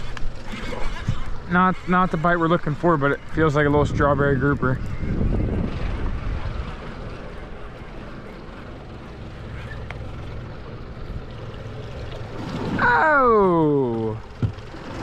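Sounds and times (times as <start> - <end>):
water sloshing against boat hull: 0.0 - 3.8, 5.8 - 13.1
wind buffeting microphone: 0.0 - 11.4.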